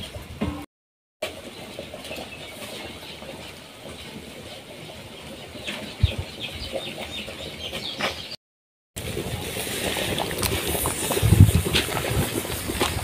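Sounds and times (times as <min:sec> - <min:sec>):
birds chirping: 0:01.3 - 0:08.4.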